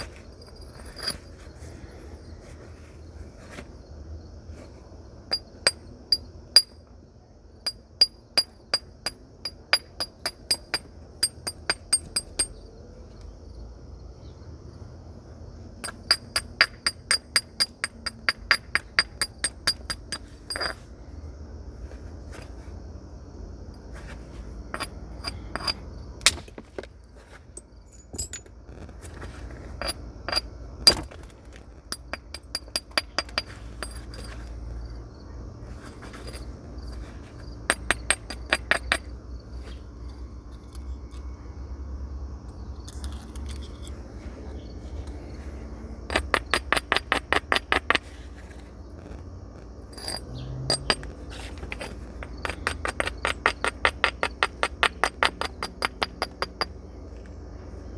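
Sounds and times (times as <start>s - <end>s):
stone striking flint: 24.7s - 26.9s, 28.1s - 34.5s, 37.7s - 39.1s, 46.1s - 48.2s, 49.9s - 56.7s.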